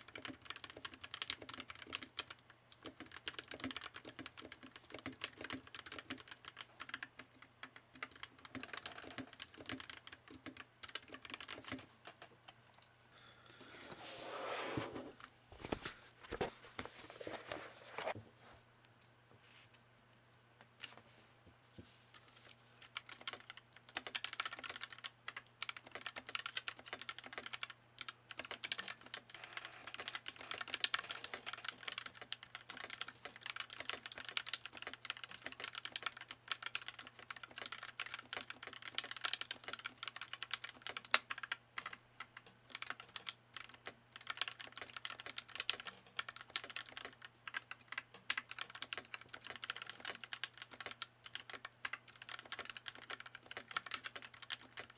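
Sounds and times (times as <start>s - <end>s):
mechanical keyboard typing: 0.0s - 11.9s, 22.8s - 54.9s.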